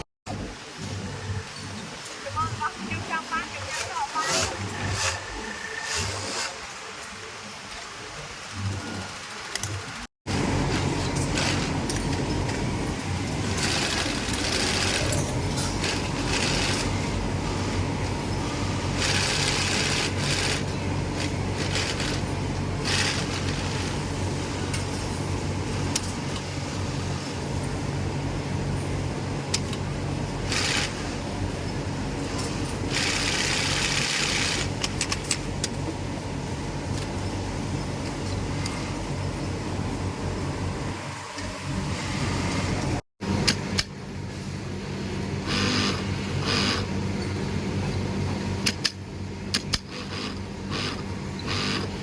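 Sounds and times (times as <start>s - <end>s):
sewing machine stitching: 3.7s - 6.8s, 13.4s - 17.0s, 18.9s - 24.0s, 30.5s - 31.1s, 32.3s - 34.8s, 49.7s - 52.0s
sewing machine motor hum: 10.3s - 24.1s, 30.4s - 31.2s, 32.2s - 34.9s, 45.4s - 47.0s, 49.7s - 52.0s.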